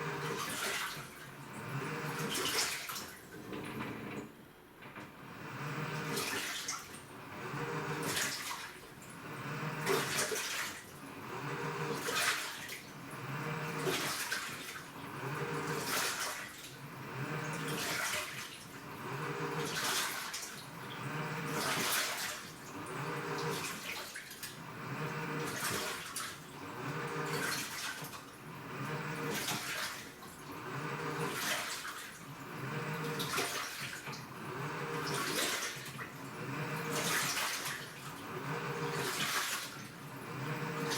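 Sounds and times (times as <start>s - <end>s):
washing machine motor humming: 0.0s - 40.9s
water sloshing: 19.6s - 20.8s, 29.2s - 30.4s, 31.2s - 34.2s, 34.9s - 40.9s.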